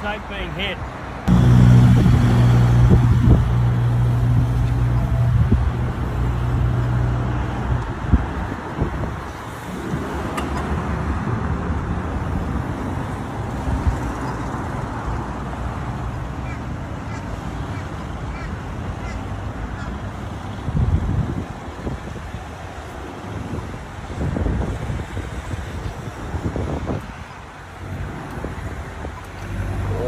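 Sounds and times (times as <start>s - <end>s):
cars passing: 0.0s - 30.0s
vehicle engine droning: 1.2s - 8.3s, 29.3s - 30.0s.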